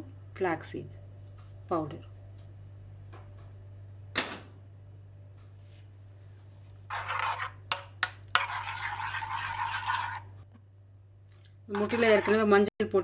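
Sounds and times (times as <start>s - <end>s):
spoon scraping and stirring in a bowl: 6.4s - 10.4s, 11.7s - 12.7s.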